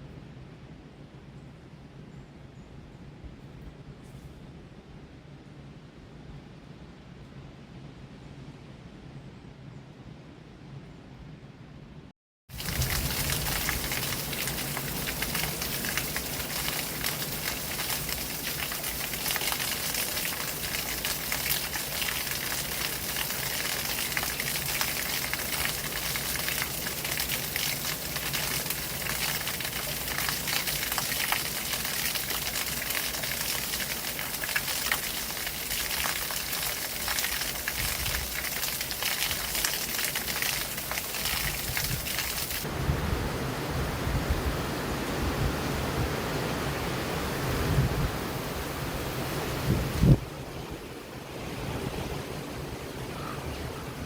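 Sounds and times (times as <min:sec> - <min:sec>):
water flowing and splashing: 0:12.5 - 0:54.0.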